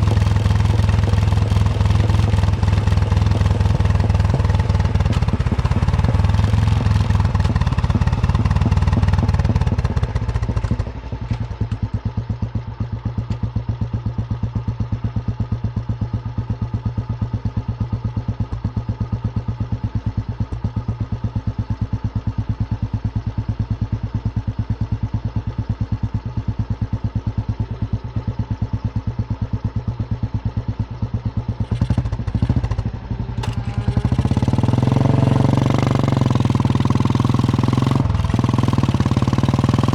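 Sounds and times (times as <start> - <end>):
motorcycle engine thumping: 0.0 - 13.8, 20.2 - 21.1, 30.4 - 39.7.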